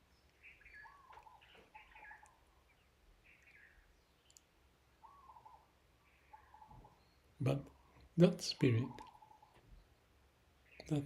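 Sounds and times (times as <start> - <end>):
faint bird chirps: 0.0 - 11.0
tiny clicks: 4.2 - 4.5.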